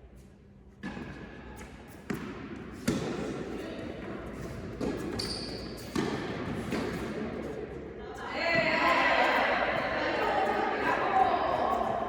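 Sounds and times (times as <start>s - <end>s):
tennis ball bouncing on court: 0.8s - 3.3s, 4.0s - 7.2s
tennis ball hit by racket: 2.1s - 3.3s.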